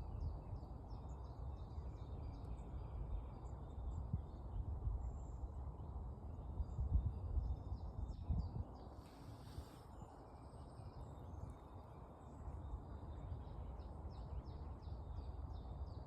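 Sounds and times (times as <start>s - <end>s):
brief hiss: 9.0s - 10.0s.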